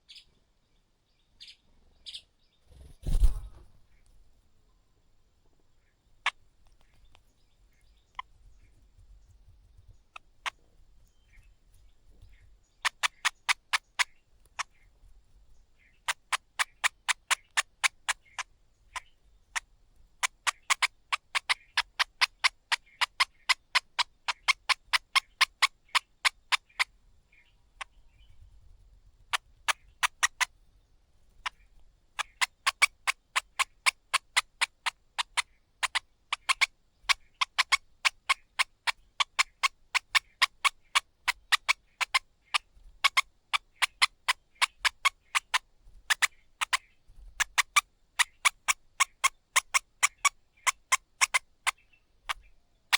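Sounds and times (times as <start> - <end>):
bird calling sharp clipped notes: 1.4 - 4.2, 31.4 - 52.9.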